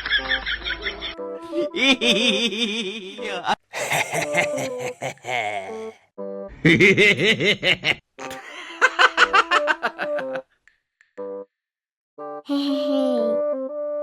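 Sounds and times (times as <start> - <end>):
rapid pulsing laughter: 3.8 - 5.7, 6.7 - 10.4.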